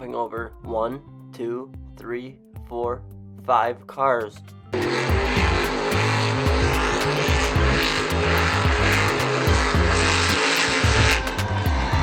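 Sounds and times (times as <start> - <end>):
music: 0.0 - 12.0
monster truck engine revving: 4.8 - 12.0.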